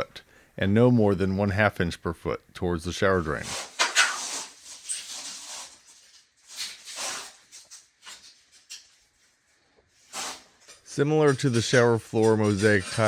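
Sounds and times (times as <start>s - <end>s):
tile scraping and rasping: 3.4s - 9.1s, 10.0s - 13.0s.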